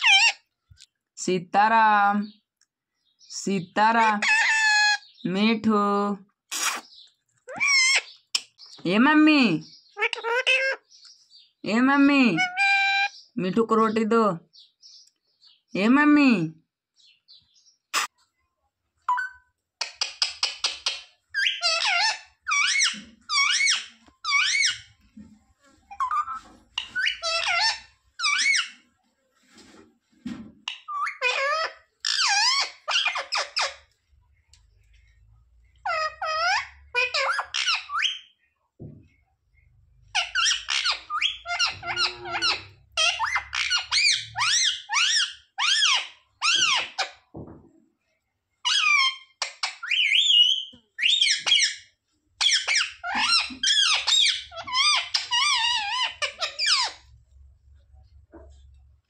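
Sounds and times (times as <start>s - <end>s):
parrot chattering and whistling: 0.0s - 0.4s, 6.5s - 8.6s, 19.1s - 24.9s, 25.9s - 28.8s, 30.7s - 33.8s, 35.8s - 38.3s, 40.1s - 47.1s, 48.6s - 57.1s.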